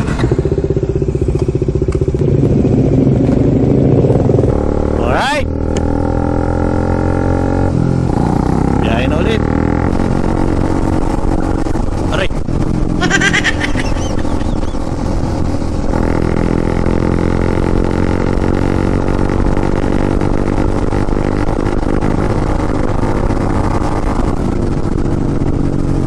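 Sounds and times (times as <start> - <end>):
motorcycle engine running: 0.0 - 26.0
wind rush on microphone: 7.4 - 26.0.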